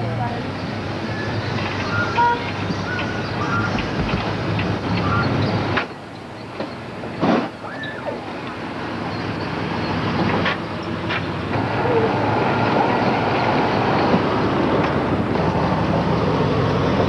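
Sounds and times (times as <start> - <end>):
car engine rumbling: 8.8 - 17.0.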